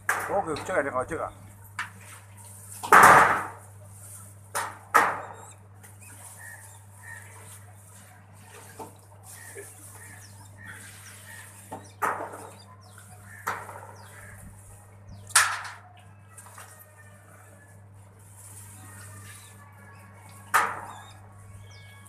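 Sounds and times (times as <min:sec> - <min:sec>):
birds coughing: 0:09.3 - 0:11.5.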